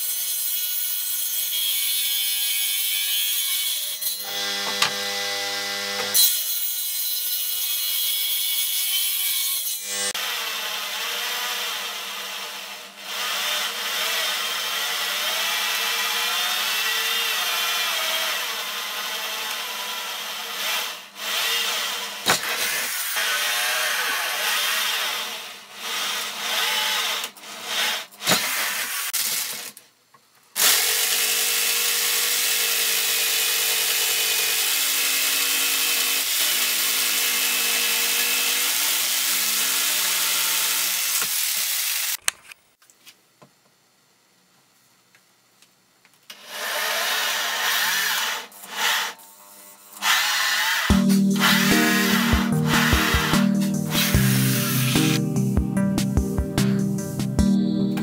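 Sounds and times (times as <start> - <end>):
electric drill boring into wood: 4.2 - 6.2, 9.8 - 29.8, 30.6 - 42.2, 46.3 - 53.4
jigsaw sawing wood: 4.2 - 6.5, 9.8 - 29.7, 30.6 - 42.2, 46.3 - 55.2.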